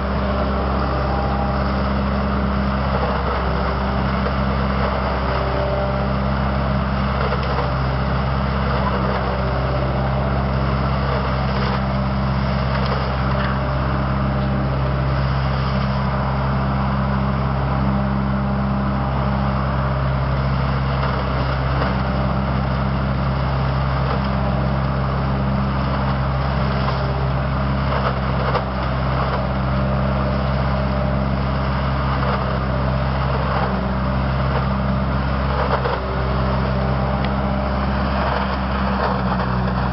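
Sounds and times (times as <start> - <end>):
leaf collector engine drone: 0.0 - 39.9.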